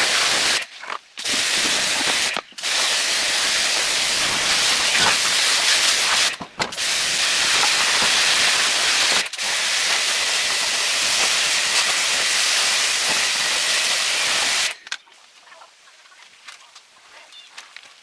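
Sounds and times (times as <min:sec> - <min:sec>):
high-pressure jet hissing: 0:00.0 - 0:00.6, 0:01.2 - 0:14.8.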